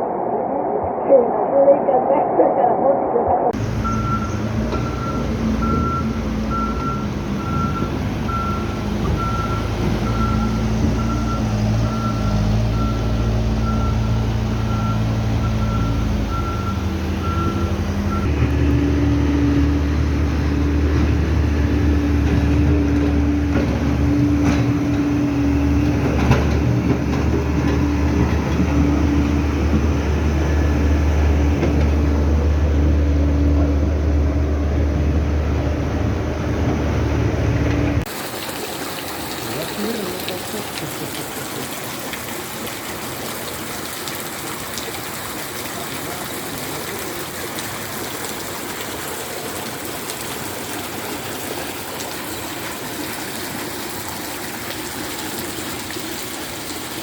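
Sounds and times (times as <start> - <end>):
heavy vehicle engine running: 3.5 - 38.3
deep engine rumble: 3.5 - 57.0
reversing alarm beeping: 3.8 - 18.4.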